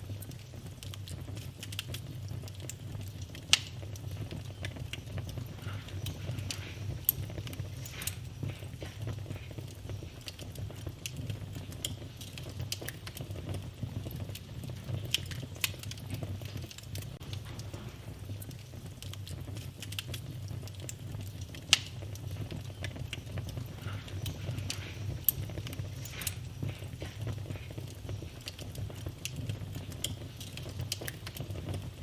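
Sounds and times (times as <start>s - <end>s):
fire crackling pops and snaps: 0.0s - 32.0s
low rumble of flames: 0.0s - 32.0s.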